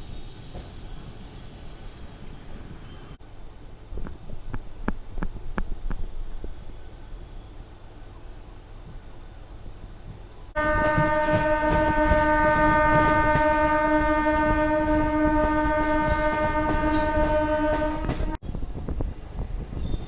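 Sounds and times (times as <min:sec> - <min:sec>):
rumble of moving train: 0:00.0 - 0:20.0
train horn: 0:10.6 - 0:18.4.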